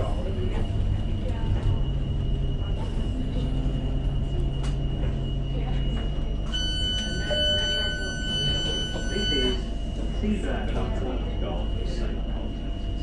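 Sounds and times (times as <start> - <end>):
train electrical hum: 0.0 - 13.0
high electronic warning tone: 6.4 - 9.9.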